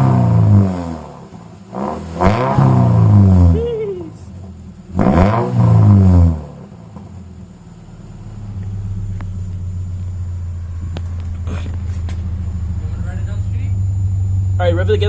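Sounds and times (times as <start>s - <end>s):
car exhaust rumble: 0.0s - 15.0s.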